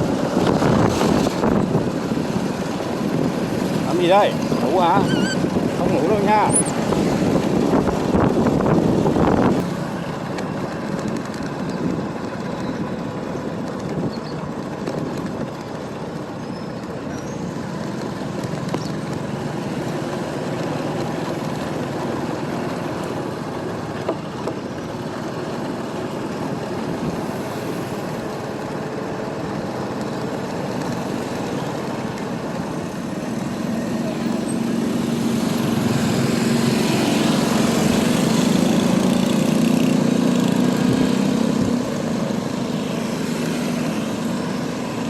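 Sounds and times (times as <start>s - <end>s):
motorbike engine and road noise: 0.0s - 45.0s.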